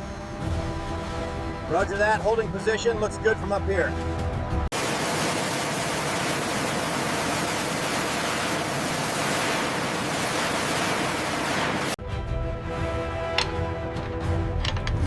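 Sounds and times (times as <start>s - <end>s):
steady rushing hiss: 4.8s - 12.0s.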